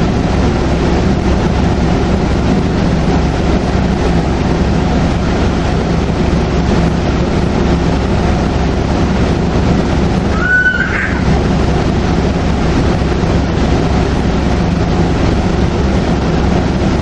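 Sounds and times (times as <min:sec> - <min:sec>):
bus engine droning: 0:00.0 - 0:17.0
road noise: 0:00.0 - 0:17.0
high squeal rising in pitch: 0:10.3 - 0:11.4.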